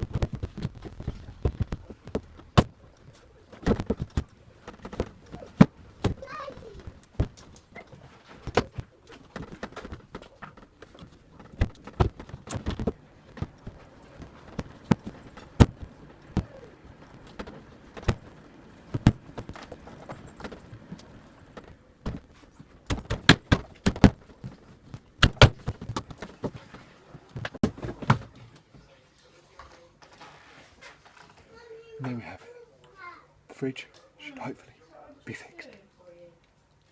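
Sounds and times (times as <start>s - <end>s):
sharp knocks and clicks: 0.0s - 28.3s.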